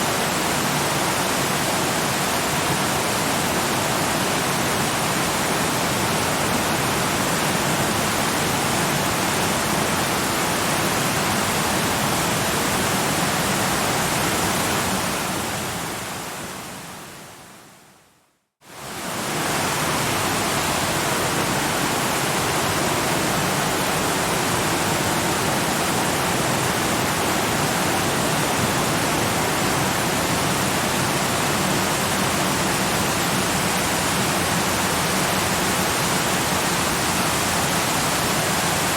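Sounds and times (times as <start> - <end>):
waterfall rushing: 18.7 - 38.9.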